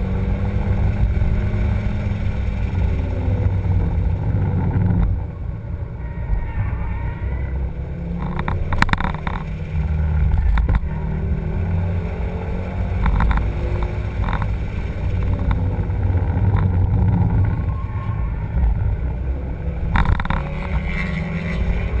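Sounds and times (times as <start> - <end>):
brakes squealing faintly: 0.0 - 22.0
car rumble: 0.0 - 22.0.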